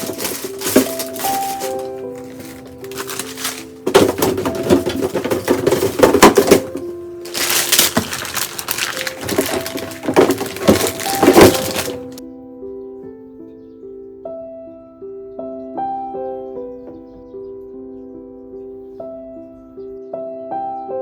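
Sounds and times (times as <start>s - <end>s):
hard objects clattering and knocking: 0.0s - 12.2s
soft background music: 0.0s - 21.0s.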